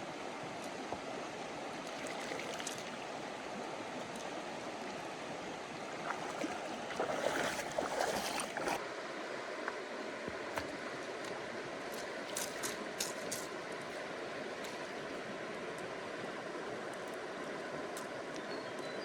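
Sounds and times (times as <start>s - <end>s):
running water rushing: 0.0s - 8.8s
water splashing: 1.8s - 3.2s, 5.8s - 8.8s.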